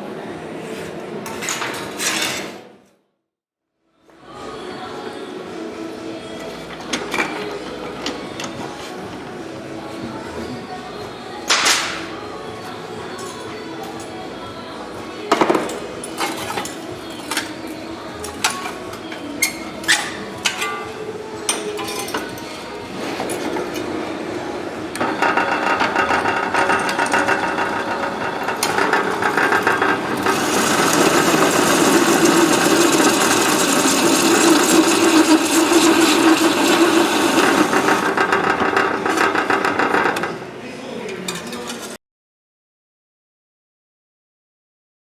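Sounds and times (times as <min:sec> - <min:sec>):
power tool on sheet metal: 0:25.0 - 0:40.3.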